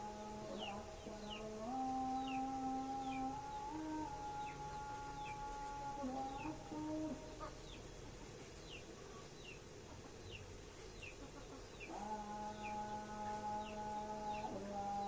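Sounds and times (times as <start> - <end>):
person humming: 0.0 - 7.4, 11.9 - 15.0
chicks peeping: 0.1 - 15.0.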